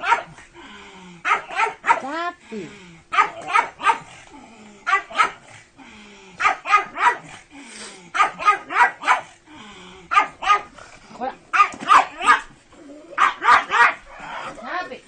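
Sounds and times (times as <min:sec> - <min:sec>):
dogs barking: 0:00.0 - 0:00.4, 0:01.2 - 0:02.2, 0:03.1 - 0:04.2, 0:04.8 - 0:05.6, 0:06.4 - 0:07.4, 0:08.1 - 0:09.4, 0:10.1 - 0:10.8, 0:11.5 - 0:12.6, 0:13.2 - 0:14.6.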